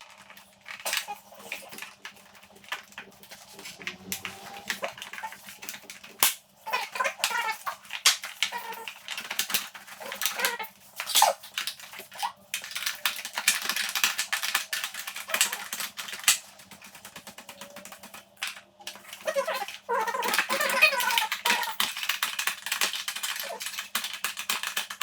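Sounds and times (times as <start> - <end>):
hand tools clicking and rattling: 0.0 - 25.0.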